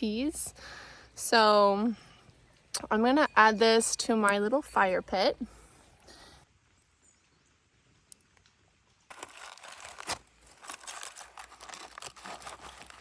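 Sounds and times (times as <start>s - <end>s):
aluminium foil crinkling: 9.1s - 13.0s.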